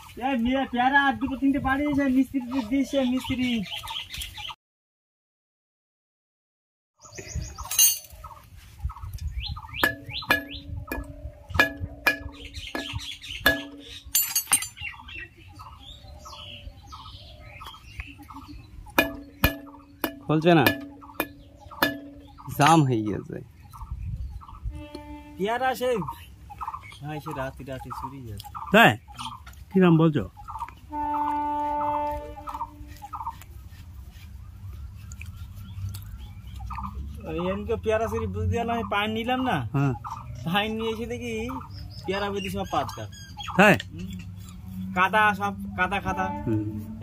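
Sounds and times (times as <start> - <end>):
birds chirping: 0.0 - 4.6, 7.0 - 47.0
fowl gobble-like rattles: 7.6 - 15.1, 18.3 - 22.9, 31.9 - 33.5
steady held tone: 9.8 - 14.8, 18.9 - 22.8
metal striking metal: 9.8 - 14.9, 18.9 - 22.9.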